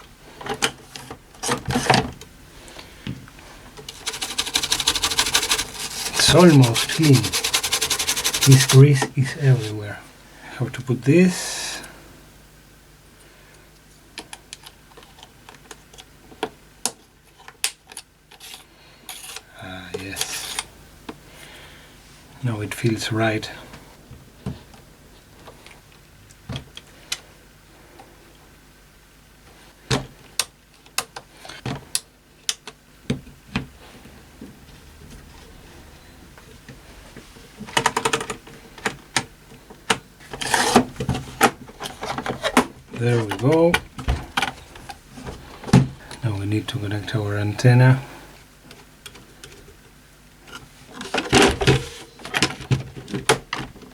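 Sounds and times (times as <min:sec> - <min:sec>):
small parts clicking and tapping: 0:03.8 - 0:08.8
brief scraping rub: 0:04.0 - 0:09.0.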